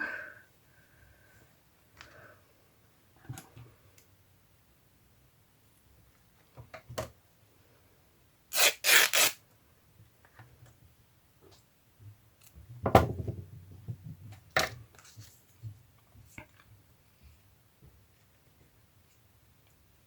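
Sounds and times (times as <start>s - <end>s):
knock with clatter: 12.8s - 14.2s.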